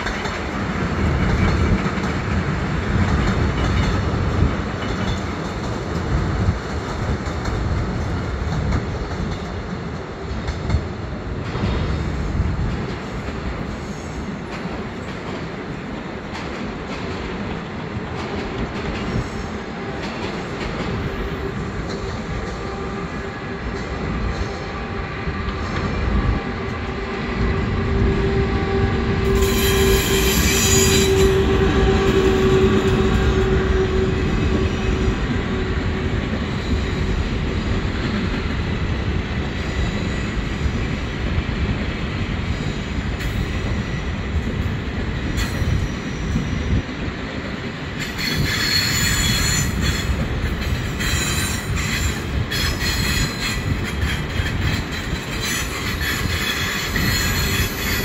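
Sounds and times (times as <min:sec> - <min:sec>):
train wheels rumbling on rails: 0:00.0 - 0:58.0
high hissing wheel squeal: 0:29.2 - 0:33.8, 0:48.0 - 0:50.2, 0:50.9 - 0:58.0.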